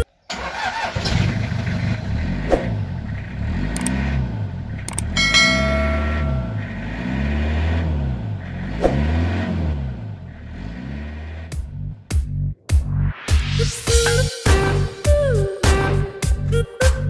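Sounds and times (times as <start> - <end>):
car engine revving: 0.5 - 12.2
sharp clicks: 3.7 - 4.0, 4.8 - 5.2
short bright chime: 5.2 - 6.9.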